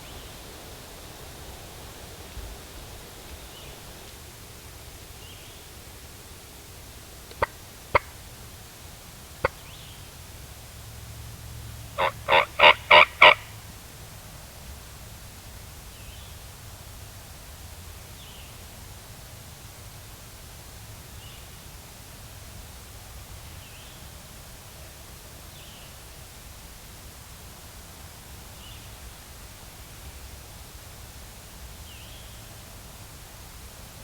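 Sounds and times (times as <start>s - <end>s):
short sharp turkey calls: 7.3s - 8.2s, 12.0s - 13.5s
turkey gobbling: 7.3s - 8.2s, 12.0s - 13.5s.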